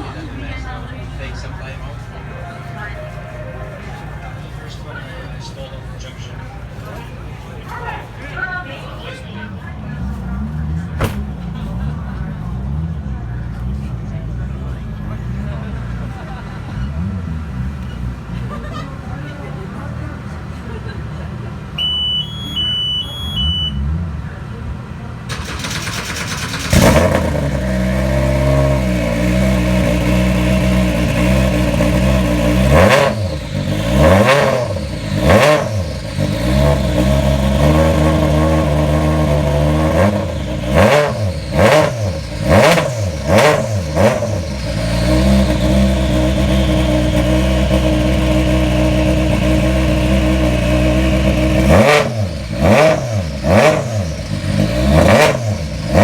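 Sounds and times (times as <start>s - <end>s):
rally car engine revving: 23.8s - 56.0s.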